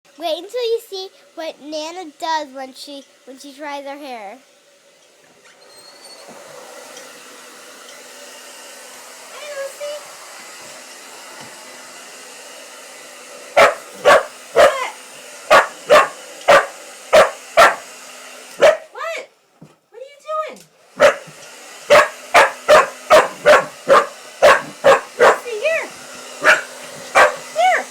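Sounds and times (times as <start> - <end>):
hair dryer running: 0.5 - 19.3, 20.3 - 27.9
dog barking: 13.6 - 14.9, 15.5 - 17.9, 18.6 - 19.0, 21.0 - 21.3, 21.9 - 25.5, 26.4 - 27.9
dog whining yelp: 26.4 - 27.9.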